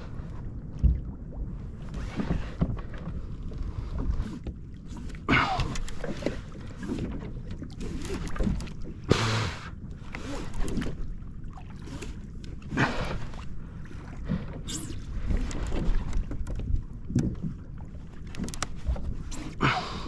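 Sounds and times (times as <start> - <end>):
wind rumble on microphone: 0.0 - 5.0, 9.9 - 19.8
water sloshing against kayak: 0.0 - 20.0.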